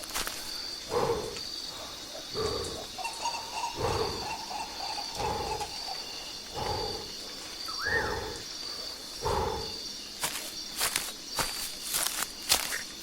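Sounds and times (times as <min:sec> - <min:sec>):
high insect chirp: 0:00.0 - 0:13.0
low animal call: 0:02.3 - 0:07.1.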